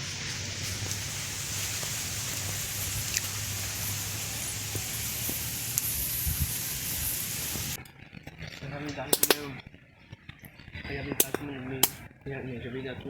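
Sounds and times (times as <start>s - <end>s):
campfire crackling: 0.0s - 7.9s, 8.6s - 9.6s, 10.6s - 12.1s.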